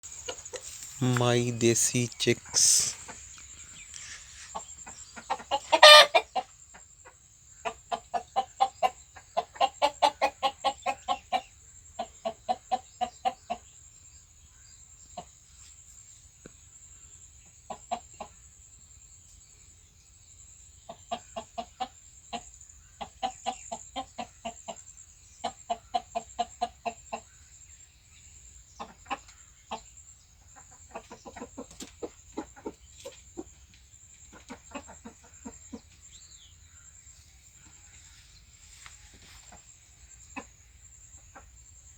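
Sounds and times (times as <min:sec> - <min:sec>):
chickens clucking: 0:00.1 - 0:13.6, 0:20.9 - 0:24.8, 0:28.8 - 0:36.4, 0:37.4 - 0:41.6.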